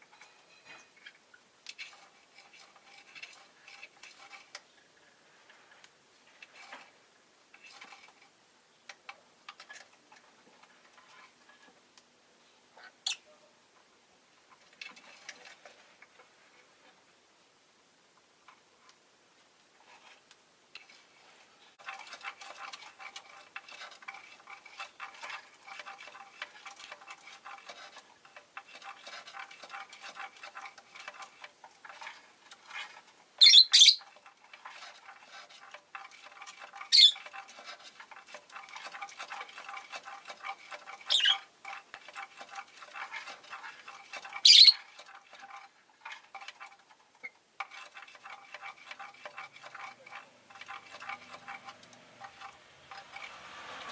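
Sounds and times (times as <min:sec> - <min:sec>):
loud shrill bird chirps: 0:33.4 - 0:34.0, 0:36.9 - 0:37.2, 0:41.1 - 0:41.4, 0:44.4 - 0:44.8.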